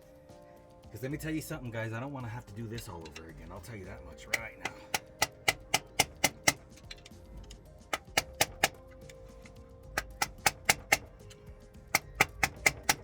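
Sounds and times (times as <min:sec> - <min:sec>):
background music: 0:00.0 - 0:13.0
light hammer taps: 0:04.3 - 0:07.2, 0:08.0 - 0:13.0.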